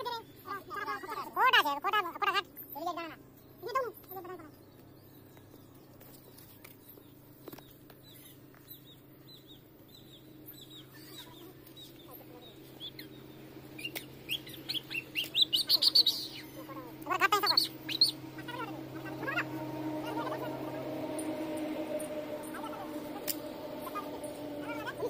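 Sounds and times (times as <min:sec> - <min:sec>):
faint low hum: 0:00.0 - 0:25.0
small birds chirping: 0:00.0 - 0:25.0.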